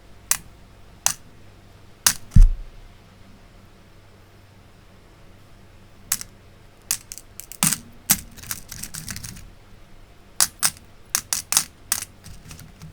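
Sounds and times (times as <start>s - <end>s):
small metal parts clicking: 1.0s - 1.2s, 2.1s - 2.4s, 6.1s - 9.5s, 10.4s - 12.9s
heavier knock: 2.3s - 2.8s.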